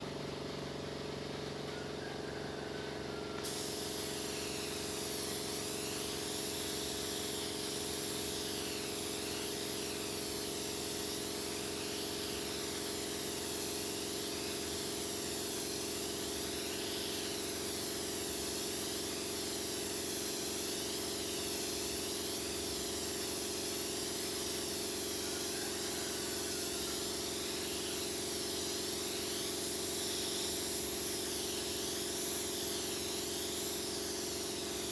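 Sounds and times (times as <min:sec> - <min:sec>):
machine hum: 0:00.0 - 0:20.3
air spray gun hissing: 0:01.2 - 0:34.9.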